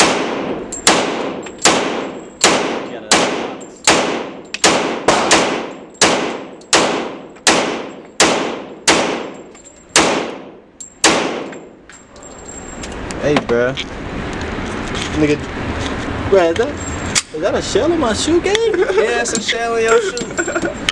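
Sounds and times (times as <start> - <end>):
gunshots echoing: 0.0 - 11.8.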